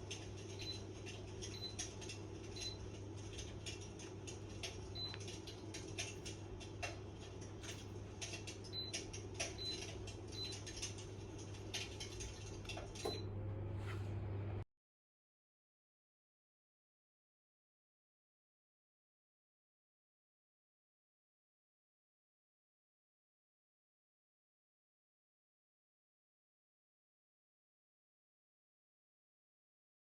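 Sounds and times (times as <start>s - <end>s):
electric heater fan hum: 0.0s - 14.7s.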